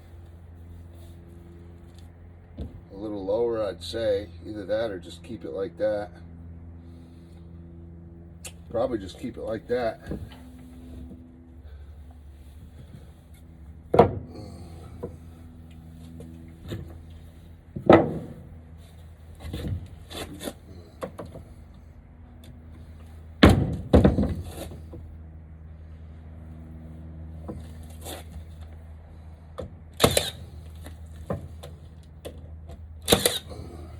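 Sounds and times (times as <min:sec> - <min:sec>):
wooden thunks and clatters: 0:13.9 - 0:14.3, 0:17.8 - 0:18.4, 0:23.4 - 0:25.0, 0:31.2 - 0:32.8.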